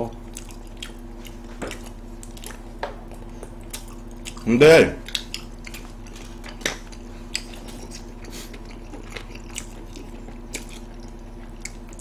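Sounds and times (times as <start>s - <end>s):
chewing and biting: 0.1s - 12.0s
wet mouth smacks and clicks: 5.0s - 5.9s.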